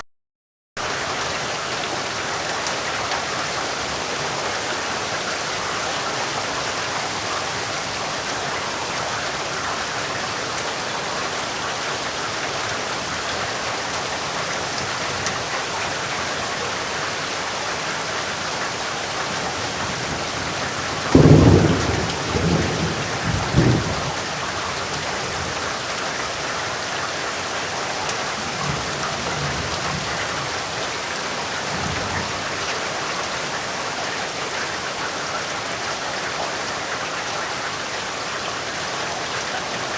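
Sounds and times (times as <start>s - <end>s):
rain falling: 0.8s - 39.9s
thunder rumbling: 19.4s - 25.6s.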